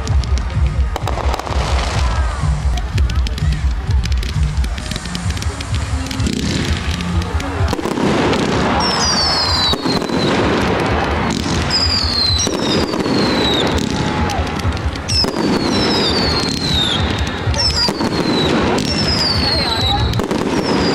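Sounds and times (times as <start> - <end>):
fireworks bangs and crackling: 0.0 - 20.9
falling firework whistles: 7.7 - 20.9.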